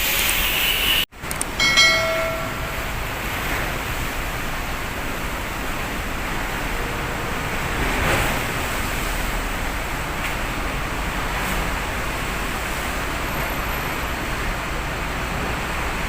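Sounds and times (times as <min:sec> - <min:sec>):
heavy waves: 0:01.2 - 0:16.0
strong wind: 0:01.2 - 0:16.0.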